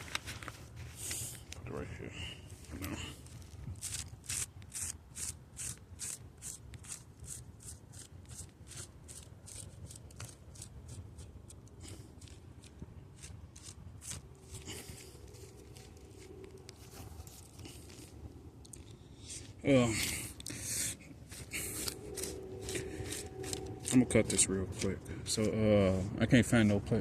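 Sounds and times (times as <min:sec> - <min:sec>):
hands scratching hoodie fabric: 0:03.7 - 0:11.4, 0:12.2 - 0:18.2, 0:20.5 - 0:24.5.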